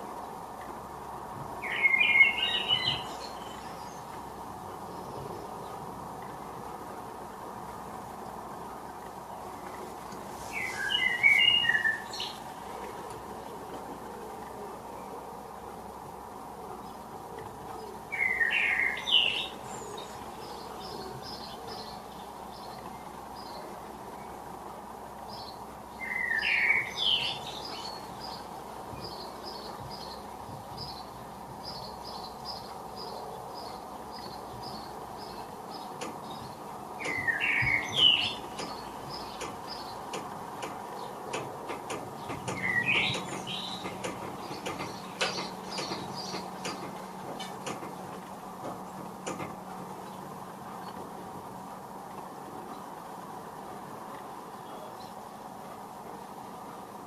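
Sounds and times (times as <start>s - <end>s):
steady background noise: 0.0s - 57.0s
blackbird singing: 1.6s - 4.0s, 10.5s - 12.4s, 18.1s - 22.0s, 26.0s - 30.2s, 30.8s - 40.0s, 42.2s - 47.6s
faint high twittering: 10.4s - 12.4s.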